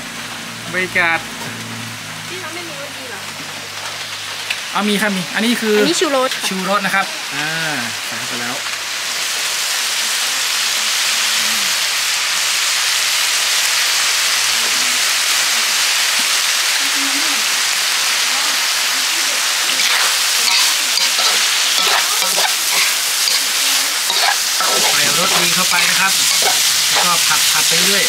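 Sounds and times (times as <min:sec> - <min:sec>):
meat sizzling in a hot pan: 0:01.6 - 0:28.0
stirring strokes: 0:19.7 - 0:28.0.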